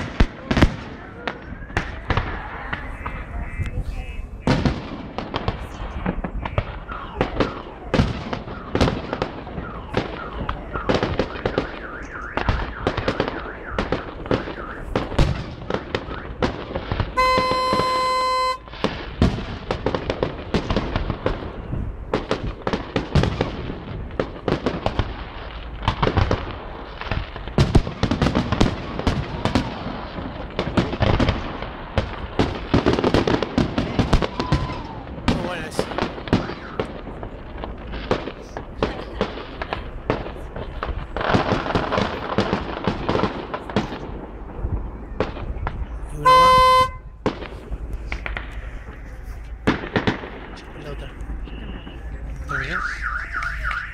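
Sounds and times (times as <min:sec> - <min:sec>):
fireworks bangs and crackles: 0:00.0 - 0:53.9
steady beep: 0:17.2 - 0:18.7, 0:46.2 - 0:47.0.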